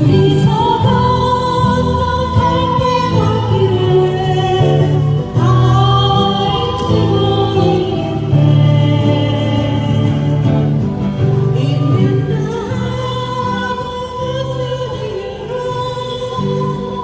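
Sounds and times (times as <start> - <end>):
acoustic guitar: 0.0 - 17.0
women singing a ballad: 0.0 - 17.0.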